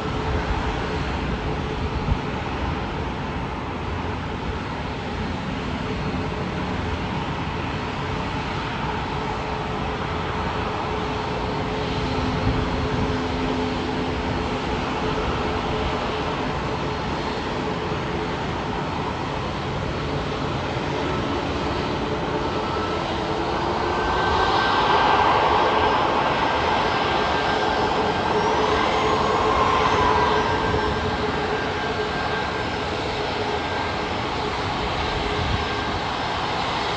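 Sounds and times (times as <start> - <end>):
jet airliner engines running: 0.0 - 36.9.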